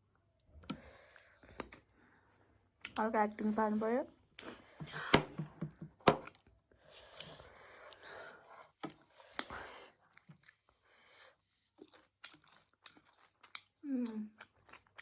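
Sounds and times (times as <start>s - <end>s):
small mouth smacks and clicks: 0.7s - 1.9s
close eating mouth sounds: 6.2s - 15.0s.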